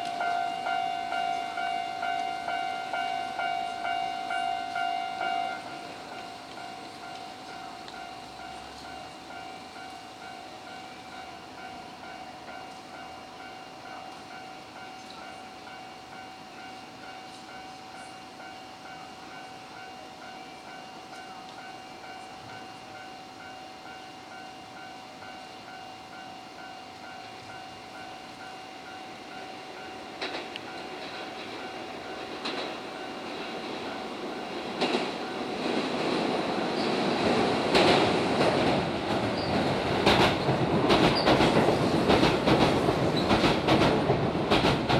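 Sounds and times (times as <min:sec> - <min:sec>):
level-crossing warning bell ringing: 0:00.0 - 0:42.0
train wheels clacking over rail joints: 0:30.2 - 0:44.9.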